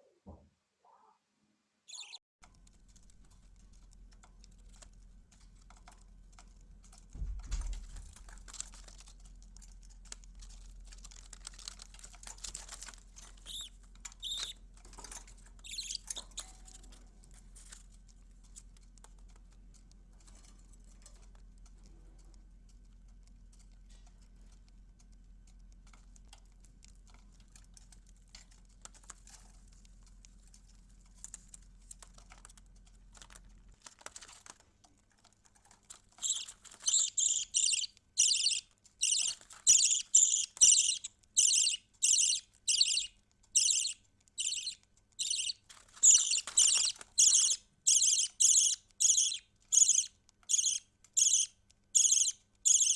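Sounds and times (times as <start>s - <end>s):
bird chirps: 1.9s - 2.2s, 13.3s - 16.6s, 36.2s - 52.9s
low electrical hum: 2.0s - 52.9s
light scratching and clicking: 2.4s - 52.9s.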